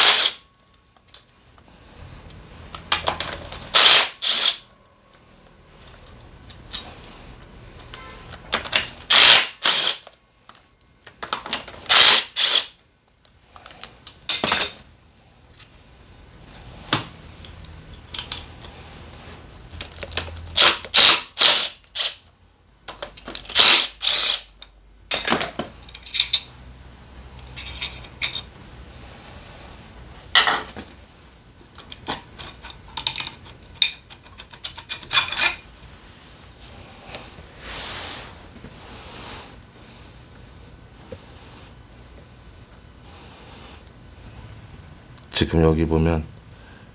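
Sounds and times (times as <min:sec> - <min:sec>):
tools and metal parts clattering: 0:13.6 - 0:14.9, 0:22.9 - 0:23.6, 0:25.1 - 0:26.5, 0:27.6 - 0:28.5, 0:30.3 - 0:30.9, 0:31.8 - 0:35.7.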